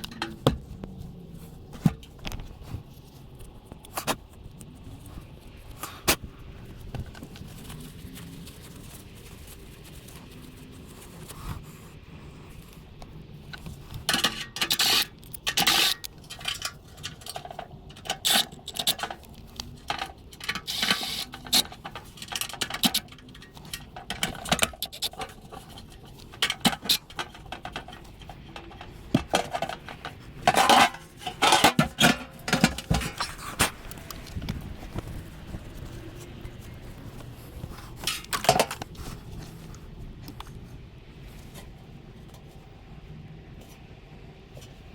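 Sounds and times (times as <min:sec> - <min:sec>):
metal clinks and scrapes: 0:13.5 - 0:39.7.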